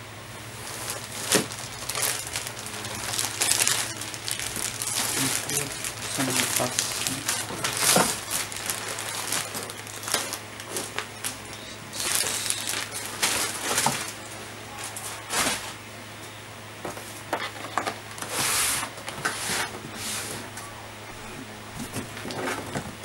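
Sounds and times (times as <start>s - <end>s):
steady low hum: 0.0s - 23.0s
packaging rustling and crinkling: 0.6s - 14.3s, 14.9s - 15.8s, 21.2s - 23.0s.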